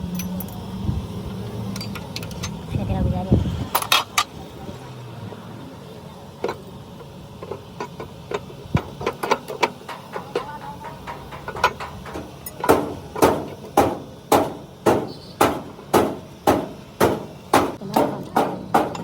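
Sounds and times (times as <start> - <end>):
hammer striking: 8.9 - 19.0.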